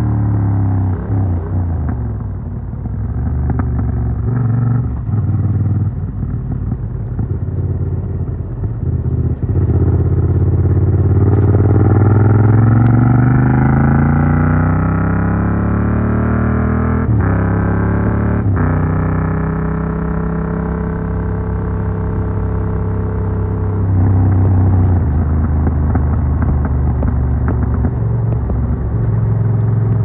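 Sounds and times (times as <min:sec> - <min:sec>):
motorcycle engine revving: 0:02.9 - 0:30.0
exhaust pops and crackles: 0:06.3 - 0:13.2, 0:24.0 - 0:30.0.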